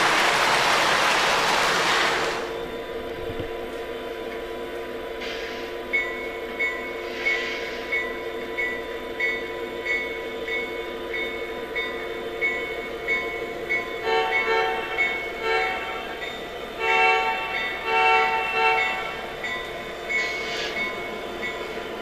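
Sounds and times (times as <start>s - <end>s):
locomotive bell ringing: 5.8s - 22.0s
locomotive horn: 14.0s - 16.2s, 16.8s - 19.2s.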